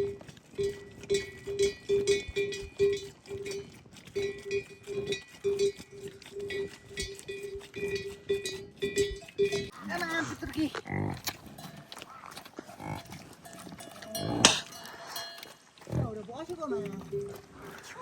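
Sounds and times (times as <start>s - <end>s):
livestock bells clanking: 0.0s - 10.2s, 11.4s - 12.0s, 12.8s - 15.6s.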